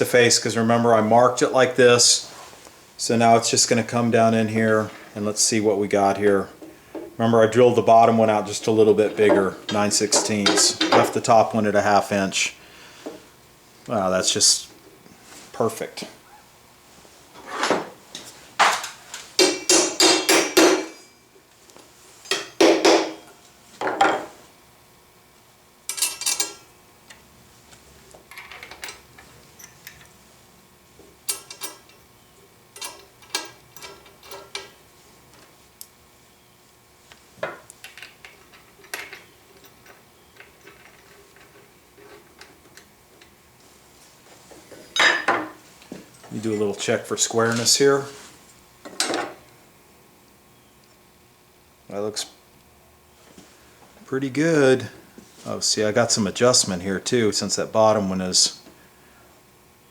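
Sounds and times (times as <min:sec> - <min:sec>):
metal brackets clanking: 0:07.0 - 0:11.6.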